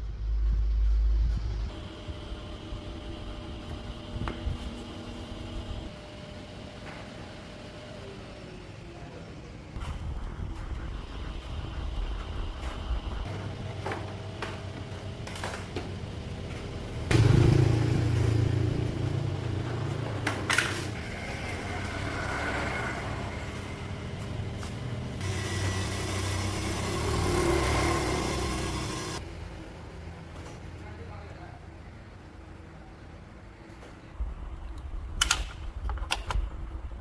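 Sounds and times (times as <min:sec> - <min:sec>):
engine revving: 0:16.1 - 0:29.2.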